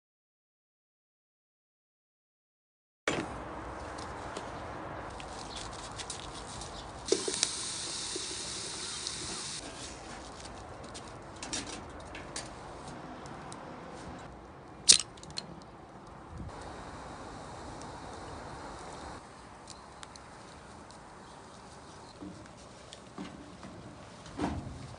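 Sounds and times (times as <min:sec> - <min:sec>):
brief high hiss: 0:07.1 - 0:09.6
steady background hiss: 0:16.5 - 0:23.1.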